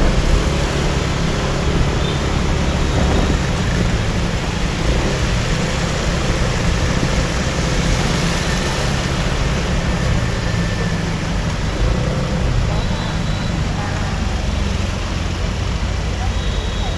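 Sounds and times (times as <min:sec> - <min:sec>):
wind rumble on microphone: 0:00.0 - 0:08.5
road traffic: 0:00.0 - 0:16.9.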